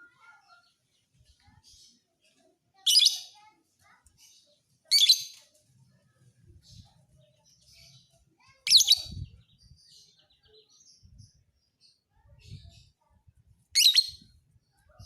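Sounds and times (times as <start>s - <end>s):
lovebird chirping: 13.8s - 14.3s.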